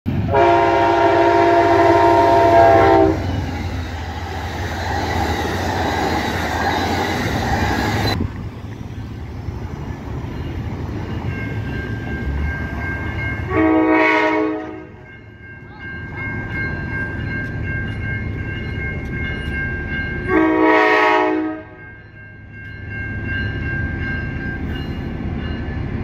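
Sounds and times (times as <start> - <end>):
train wheels on rails: 0.1 - 26.0
locomotive air horn: 0.2 - 3.4, 13.5 - 14.9, 20.3 - 21.8
crossing warning signal ringing: 0.3 - 8.2, 9.7 - 26.0.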